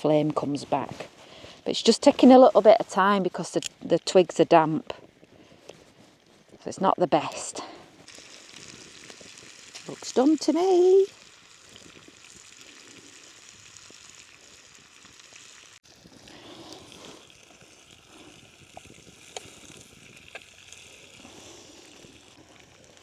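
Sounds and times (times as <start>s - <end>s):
bacon sizzling in a pan: 7.3s - 23.0s
sharp clicks and crackles: 11.1s - 23.0s.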